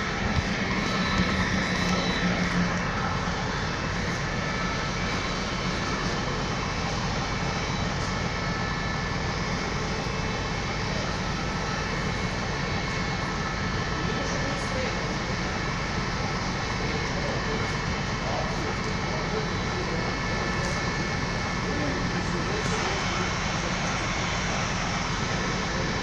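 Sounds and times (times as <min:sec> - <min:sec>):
train rumbling: 0:00.0 - 0:08.2.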